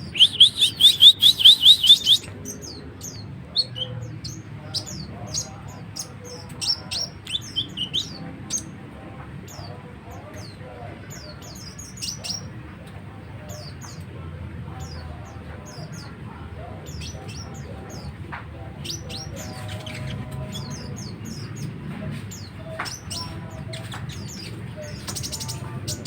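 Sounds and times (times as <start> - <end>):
bird chattering song: 0.0 - 8.7, 16.8 - 26.0.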